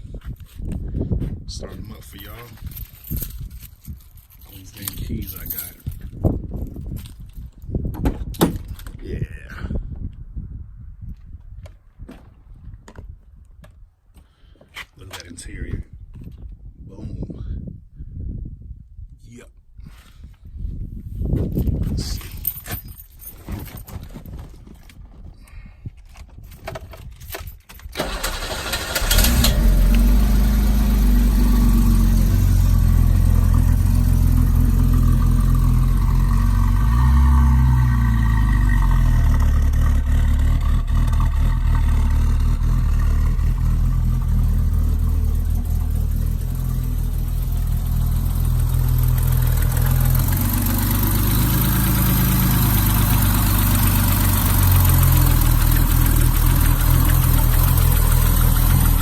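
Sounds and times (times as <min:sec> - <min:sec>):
engine cranking on starter: 0:27.8 - 0:31.6, 0:48.2 - 0:59.0
car engine idling: 0:28.0 - 0:59.0.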